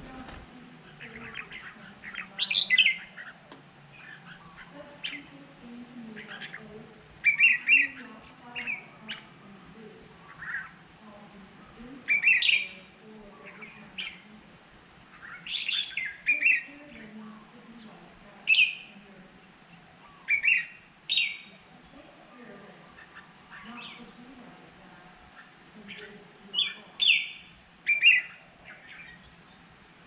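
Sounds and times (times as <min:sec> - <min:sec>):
faint low bird calls: 0:00.0 - 0:30.0.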